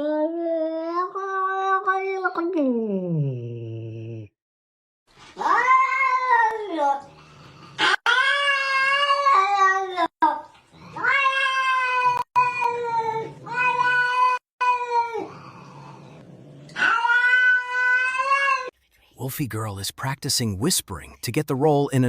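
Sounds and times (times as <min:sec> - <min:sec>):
cat yowling: 0:05.4 - 0:06.5, 0:07.8 - 0:10.1, 0:10.9 - 0:15.5, 0:16.7 - 0:18.7.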